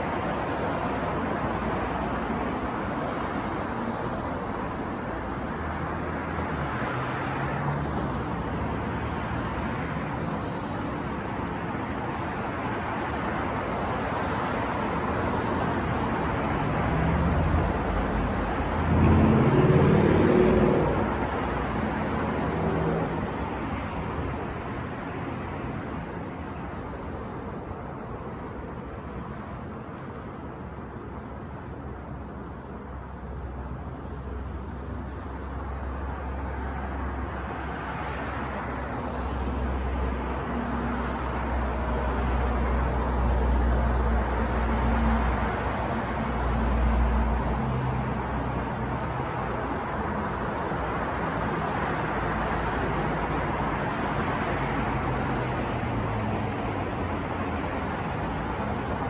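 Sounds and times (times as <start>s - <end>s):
passing cars: 0.0s - 59.0s
loud vehicle engine passing: 16.6s - 23.5s.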